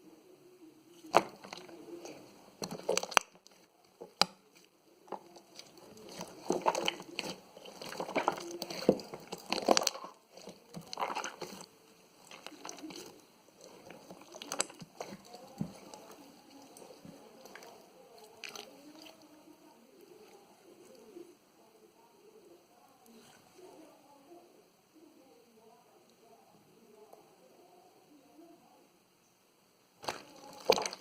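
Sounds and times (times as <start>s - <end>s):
jelly toy squelching: 1.0s - 21.2s, 30.0s - 31.0s.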